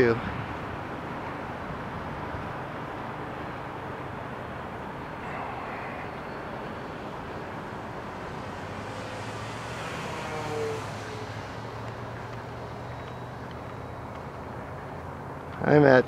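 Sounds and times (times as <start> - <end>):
model plane motors whining: 5.1 - 15.0.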